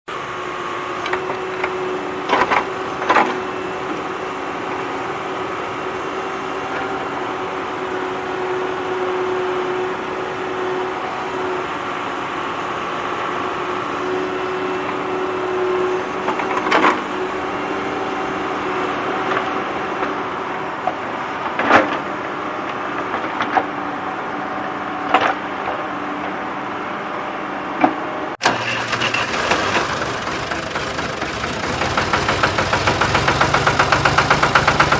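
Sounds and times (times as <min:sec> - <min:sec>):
tractor engine running: 0:00.2 - 0:26.3, 0:28.4 - 0:34.9.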